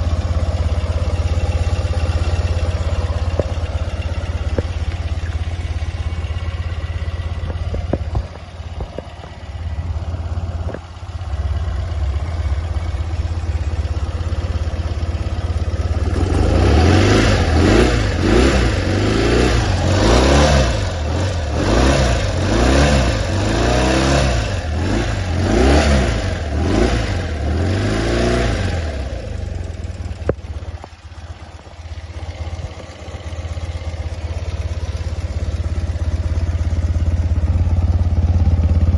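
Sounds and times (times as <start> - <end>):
motorcycle engine idling: 0.0 - 38.9
motorcycle throttle revving: 0.0 - 38.9.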